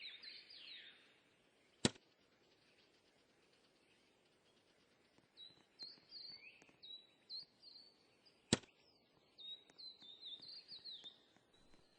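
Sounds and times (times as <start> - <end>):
small bird chirping: 0.0 - 11.9
sharp click: 1.8 - 2.1, 8.5 - 8.8.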